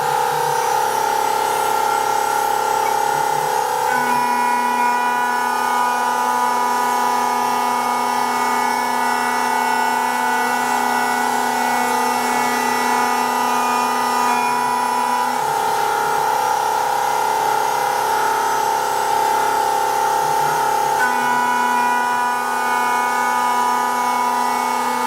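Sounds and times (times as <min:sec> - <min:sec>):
router spindle whining: 0:00.0 - 0:25.0.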